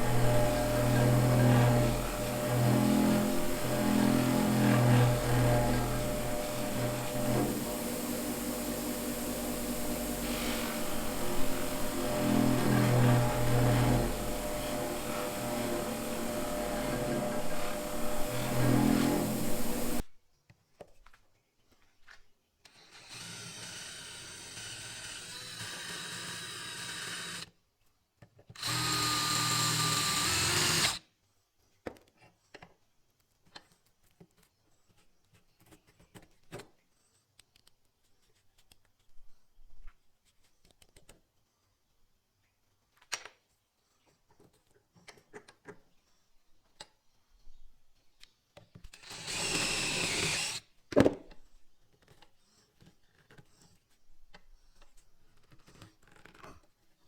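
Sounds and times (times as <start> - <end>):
power drill motor whining: 0.0 - 20.0, 28.6 - 31.0, 49.0 - 50.6.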